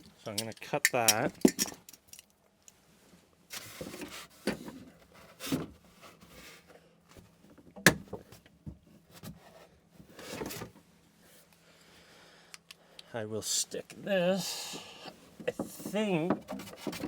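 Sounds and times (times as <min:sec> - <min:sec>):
hand tools clicking and knocking: 0:00.0 - 0:02.2.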